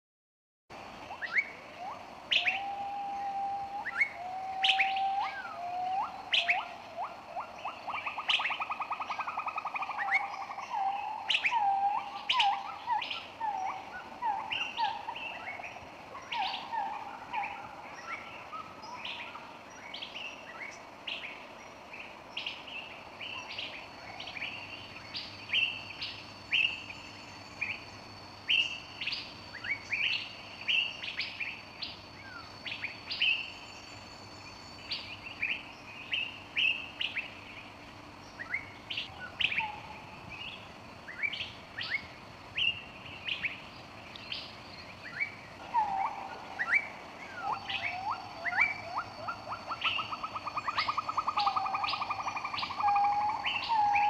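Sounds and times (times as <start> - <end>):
birds chirping and whistling: 1.2 - 21.3, 38.2 - 54.0.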